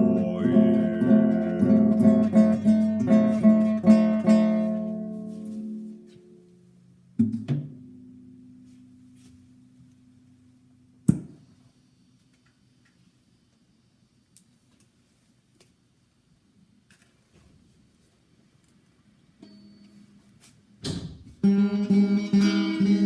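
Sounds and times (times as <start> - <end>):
acoustic guitar strumming: 0.0 - 6.6, 21.4 - 23.0.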